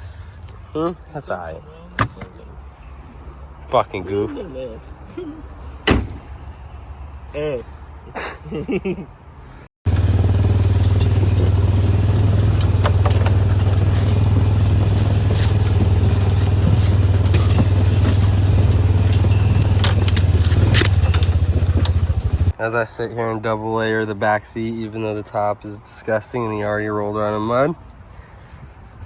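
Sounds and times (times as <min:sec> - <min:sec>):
light clicks and rattles: 0:09.9 - 0:22.6
truck engine droning: 0:09.9 - 0:22.6.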